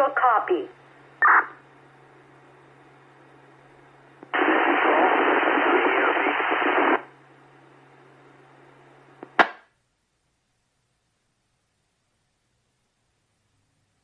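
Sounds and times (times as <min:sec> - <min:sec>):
radio hiss and hum: 0:00.0 - 0:09.6
radio static burst: 0:01.2 - 0:01.6, 0:04.3 - 0:07.1.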